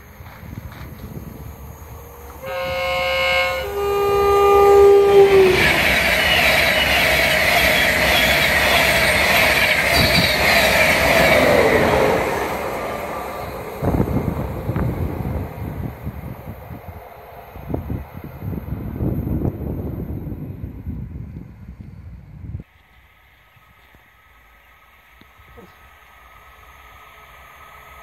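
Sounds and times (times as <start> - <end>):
train passing at speed: 0.0 - 28.0
two-tone train horn: 2.4 - 8.8.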